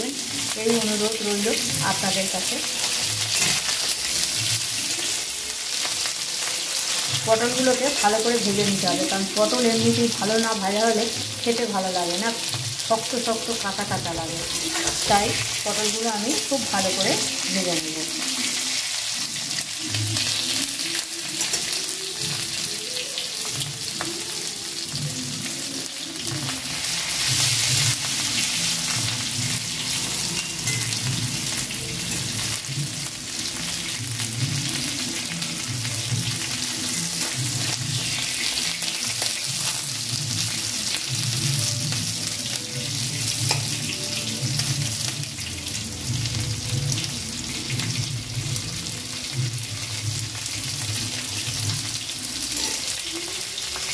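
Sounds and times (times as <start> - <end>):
vegetables sizzling in oil: 0.0 - 53.9
metal spatula stirring: 2.6 - 4.5, 43.2 - 43.9.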